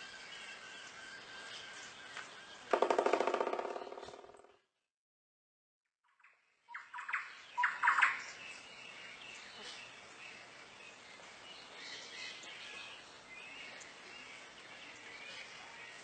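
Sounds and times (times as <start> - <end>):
outdoor background: 0.0 - 4.9, 5.9 - 16.0
faint bird chirping: 6.2 - 16.0.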